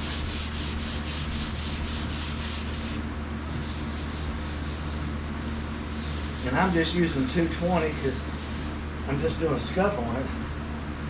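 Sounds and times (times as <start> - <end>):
sandpaper rubbing on paint: 0.0 - 8.8
steady low hum: 0.0 - 9.4.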